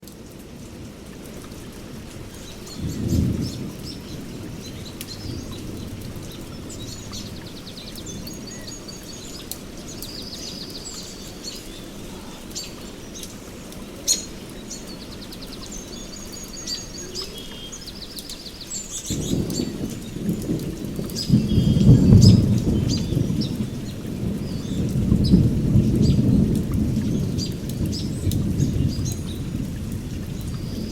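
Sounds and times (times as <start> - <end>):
steady rain: 0.0 - 30.9
songbirds chirping and trilling: 1.5 - 30.9
thunder rumbling: 2.0 - 9.8, 19.0 - 30.9.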